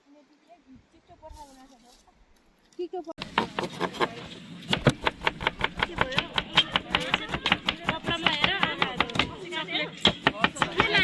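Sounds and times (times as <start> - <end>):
rapid chopping: 3.2 - 9.4, 10.0 - 11.0
voices talking: 5.6 - 11.0.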